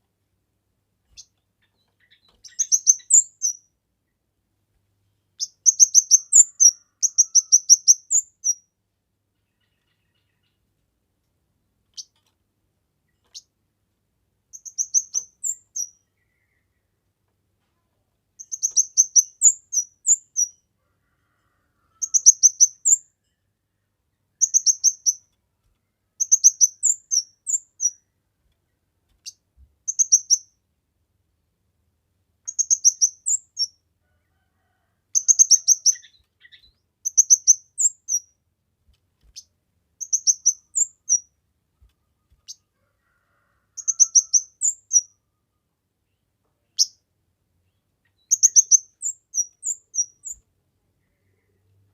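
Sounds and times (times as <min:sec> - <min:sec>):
songbird singing: 0:01.0 - 0:04.3, 0:05.3 - 0:08.7, 0:09.3 - 0:10.8, 0:14.5 - 0:17.3, 0:18.3 - 0:20.7, 0:22.0 - 0:23.2, 0:23.8 - 0:30.7, 0:32.4 - 0:38.4, 0:39.2 - 0:45.4, 0:46.0 - 0:51.9.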